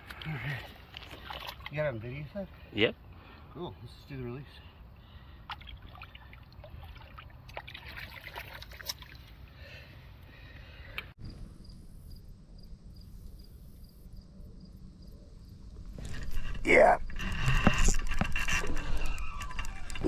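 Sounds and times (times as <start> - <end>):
water splashing and trickling: 0.0 - 3.7, 5.0 - 10.0
low rumble of flowing water: 4.6 - 10.6.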